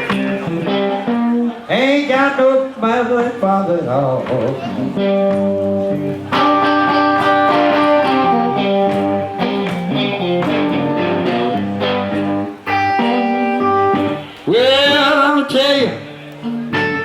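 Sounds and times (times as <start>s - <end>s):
blues guitar playing: 0.0s - 17.0s
person singing: 1.6s - 9.2s.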